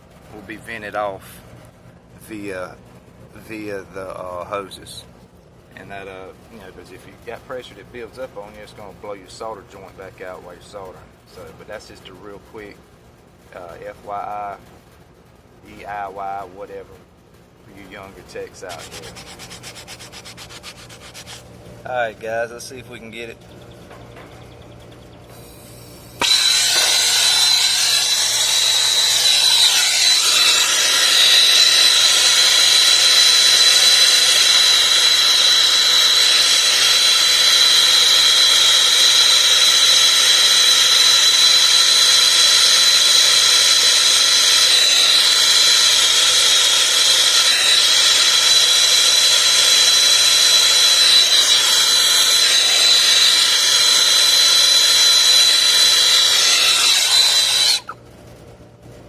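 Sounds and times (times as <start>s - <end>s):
brazing torch hissing: 18.7s - 21.4s, 25.3s - 58.0s.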